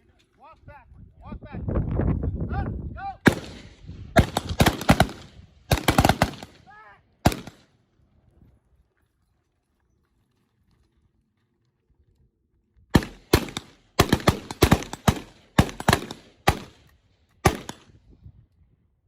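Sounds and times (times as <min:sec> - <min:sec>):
gunshots: 0:03.2 - 0:07.7, 0:12.9 - 0:16.8, 0:17.4 - 0:17.9.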